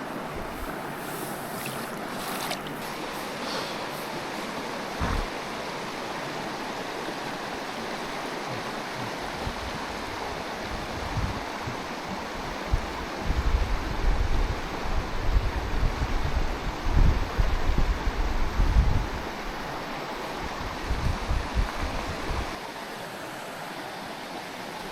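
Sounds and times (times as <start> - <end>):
stream running over rocks: 0.0 - 24.9
wind buffeting microphone: 8.5 - 19.3, 20.4 - 22.6.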